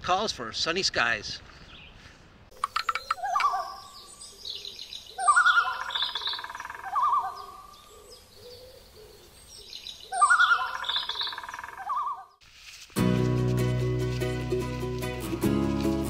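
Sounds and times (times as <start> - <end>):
high bird chirps: 2.6 - 12.4
long wavering bird calls: 2.6 - 12.4.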